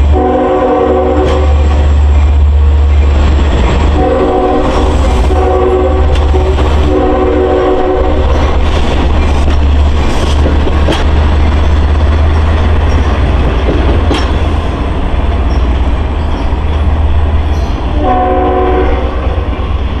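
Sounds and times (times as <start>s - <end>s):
train horn: 0.0s - 1.9s, 3.9s - 8.4s, 17.9s - 19.8s
train rumbling past: 0.0s - 20.0s
wheels clicking on rails: 8.2s - 17.9s.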